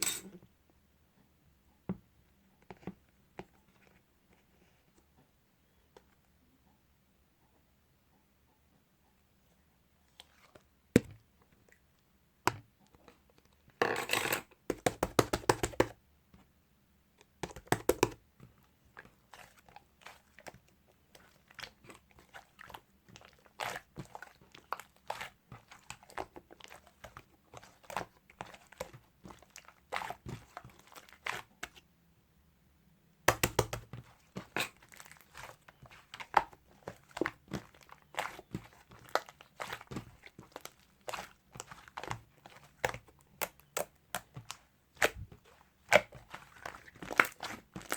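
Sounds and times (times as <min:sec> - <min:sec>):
sticky slime crackles and pops: 0:33.3 - 0:47.9.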